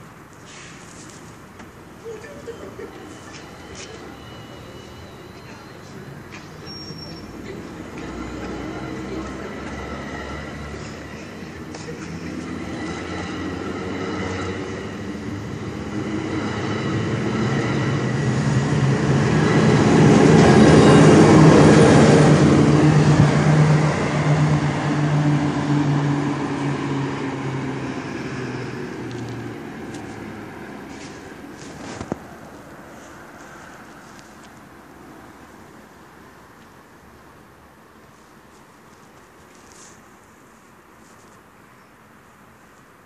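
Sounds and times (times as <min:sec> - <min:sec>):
locomotive engine drone: 0:01.8 - 0:36.1
train rolling past: 0:01.9 - 0:35.3.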